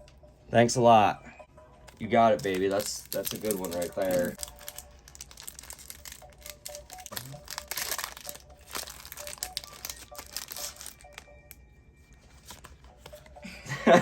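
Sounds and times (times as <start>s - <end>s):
foil wrapper crinkling: 1.9s - 11.6s.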